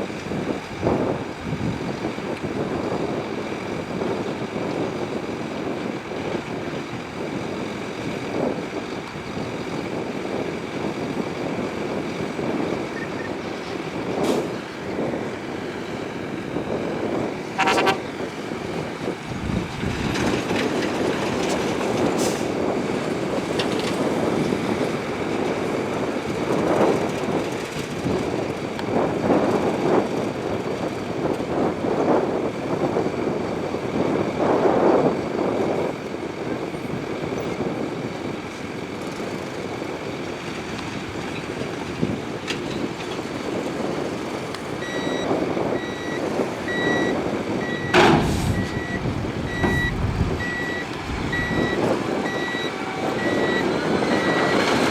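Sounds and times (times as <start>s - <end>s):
heavy diesel machinery running: 0.1s - 54.9s
brief horn toot: 17.6s - 18.1s.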